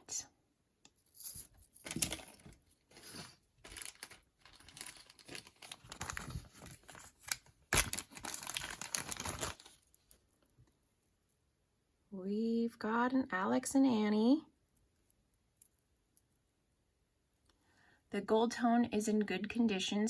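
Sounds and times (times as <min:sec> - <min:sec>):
packaging crinkling and rustling: 0:01.9 - 0:10.2.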